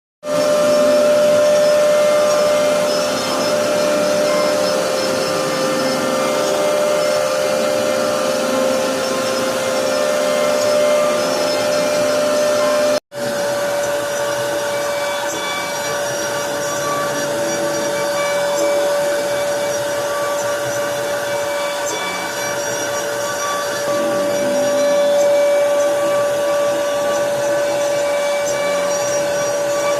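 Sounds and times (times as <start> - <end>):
router spindle carving wood: 0.2 - 29.9.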